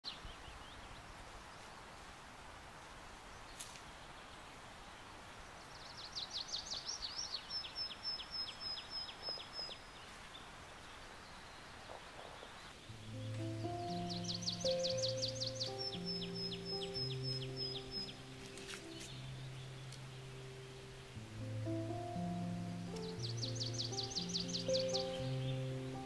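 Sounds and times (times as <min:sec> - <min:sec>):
steady hiss: 0:00.1 - 0:26.0
songbird singing high notes: 0:12.3 - 0:26.0.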